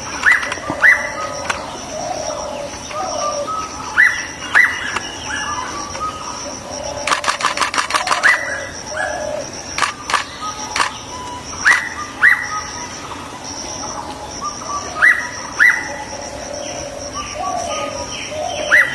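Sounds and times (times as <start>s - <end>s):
faint steady high tone: 0.0s - 18.9s
quick run of clicks: 7.0s - 8.4s, 9.8s - 11.0s.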